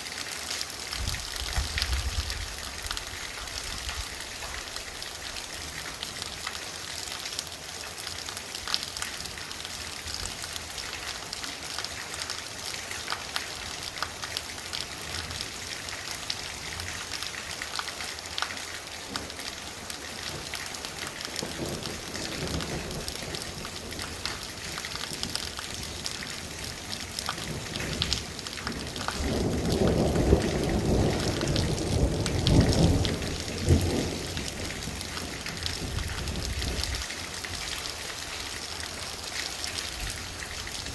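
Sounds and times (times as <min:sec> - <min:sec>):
torrential rain pattering: 0:00.0 - 0:40.9
thunder rumbling: 0:27.4 - 0:37.1.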